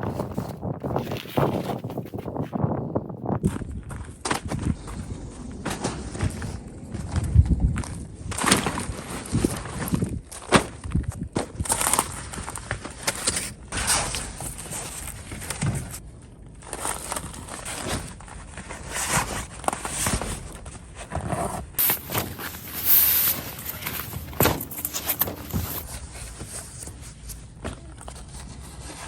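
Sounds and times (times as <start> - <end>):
rustling and scraping of gear: 0.0 - 16.0, 16.6 - 29.0
footsteps: 21.8 - 27.1.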